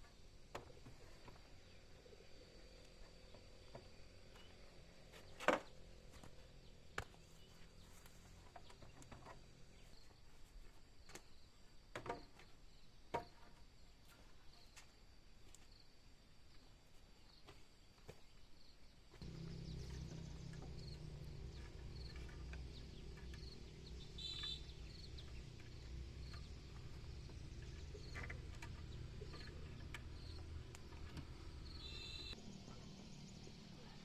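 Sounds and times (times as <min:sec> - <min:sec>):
faint high whine: 0:31.0 - 0:34.0.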